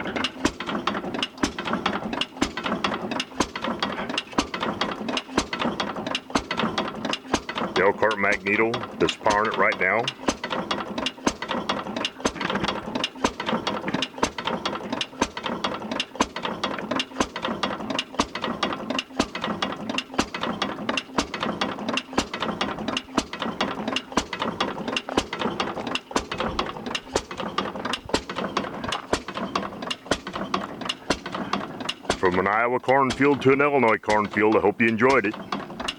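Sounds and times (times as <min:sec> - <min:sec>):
stationary engine clicking and clattering: 0:00.0 - 0:35.9.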